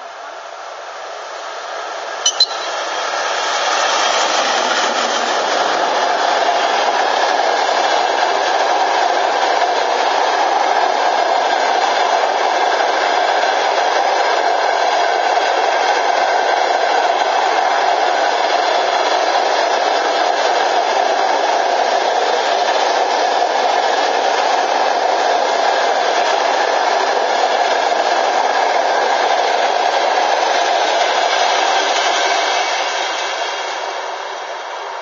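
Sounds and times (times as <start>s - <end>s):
train wheels clattering on rails: 2.4s - 34.5s.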